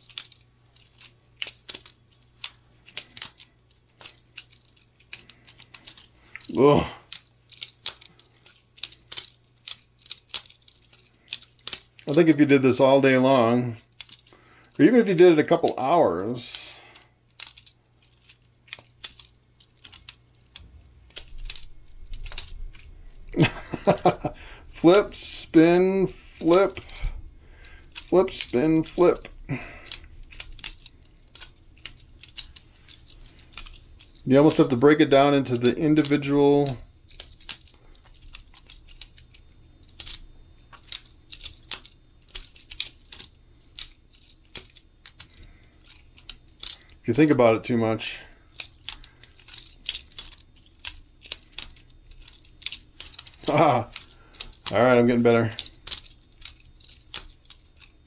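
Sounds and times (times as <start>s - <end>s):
butterfly knife clicking and clacking: 0.0s - 6.2s, 7.1s - 12.3s, 13.2s - 14.4s, 16.5s - 47.4s, 48.0s - 54.8s, 55.5s - 58.0s.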